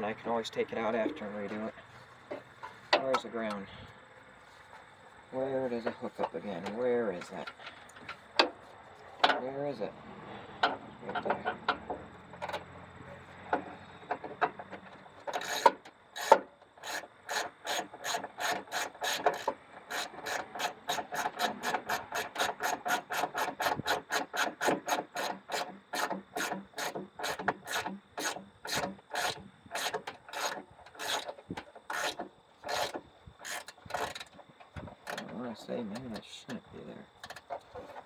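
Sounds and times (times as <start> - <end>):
ratchet wrench clicking: 15.3 - 31.3.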